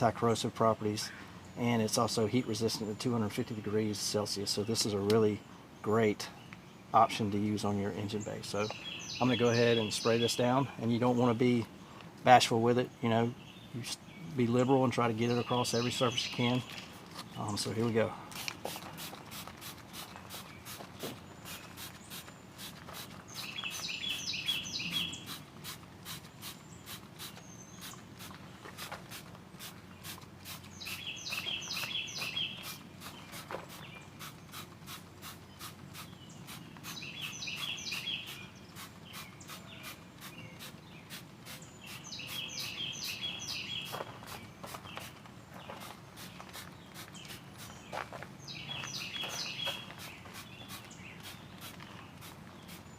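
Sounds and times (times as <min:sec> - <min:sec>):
bird chirping: 0:00.0 - 0:52.9
hand sprayer squirts: 0:18.3 - 0:42.8, 0:49.4 - 0:52.9.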